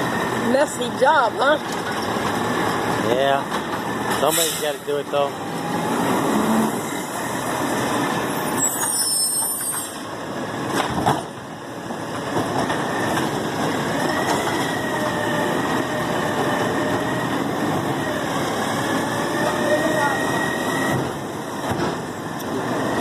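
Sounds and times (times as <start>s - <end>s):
garbage truck engine running: 0.0s - 8.4s.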